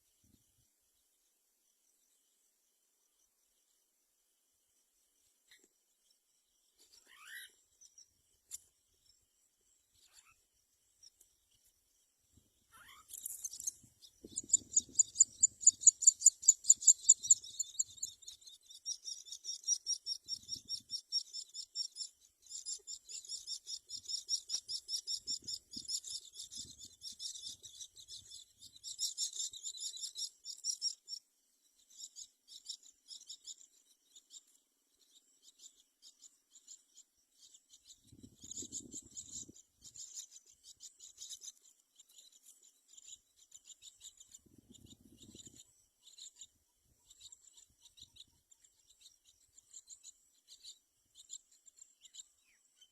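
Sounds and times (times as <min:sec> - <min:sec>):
nestlings chirping: 0:12.7 - 0:31.2, 0:35.5 - 0:52.3.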